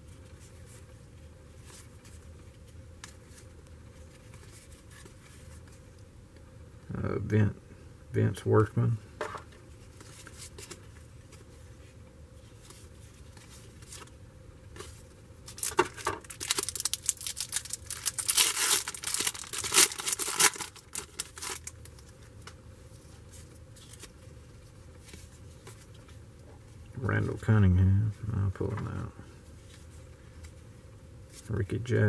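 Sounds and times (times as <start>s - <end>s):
wrapper tearing and crinkling: 15.4s - 22.1s
quiet handling: 21.8s - 32.0s.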